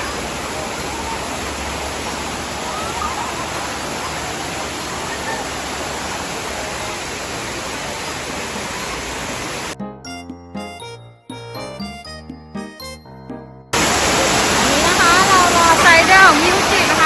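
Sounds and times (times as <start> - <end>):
waterfall rushing: 0.0 - 9.8, 13.8 - 17.0
jingly music: 9.8 - 13.8.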